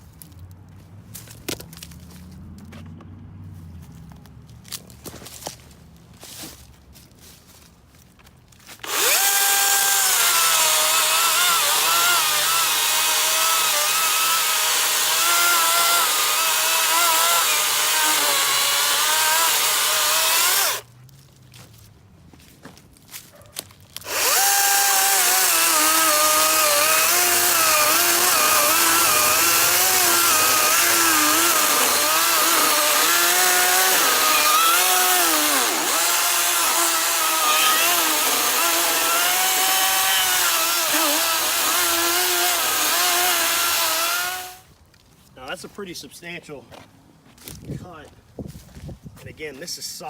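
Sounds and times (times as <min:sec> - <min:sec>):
cordless chainsaw cutting log: 0:08.8 - 0:20.9, 0:24.0 - 0:44.7.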